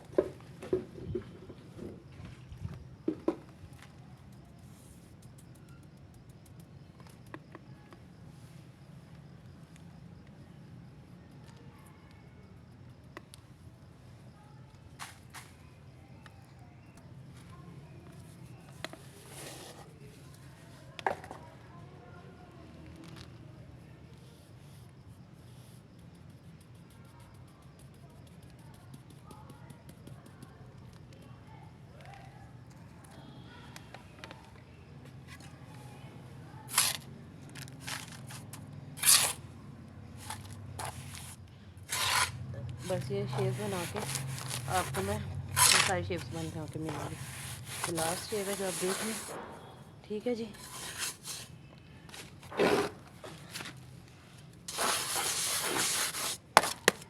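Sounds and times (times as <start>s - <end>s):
scraping handling noises: 18.3s - 20.1s, 36.7s - 39.4s, 40.1s - 49.6s, 50.3s - 57.0s.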